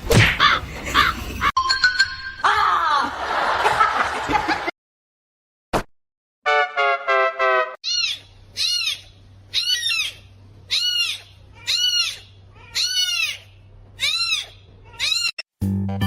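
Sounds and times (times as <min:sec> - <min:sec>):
animal calling: 0:07.8 - 0:15.4.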